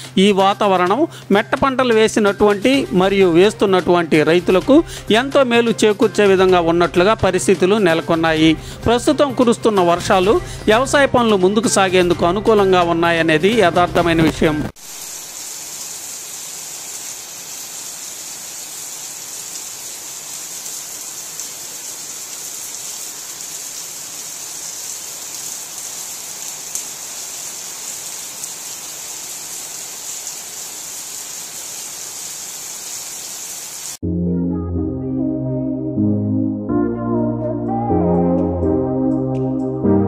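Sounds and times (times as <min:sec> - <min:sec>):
rain on stone paving: 0:14.7 - 0:34.0.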